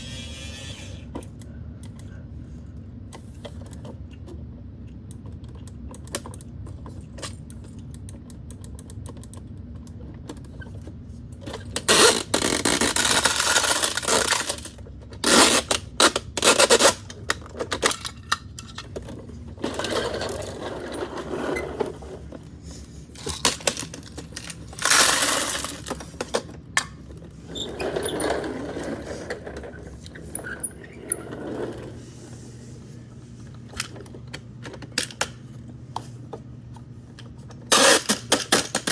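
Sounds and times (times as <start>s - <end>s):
small plastic parts rattling: 23.2s - 26.5s.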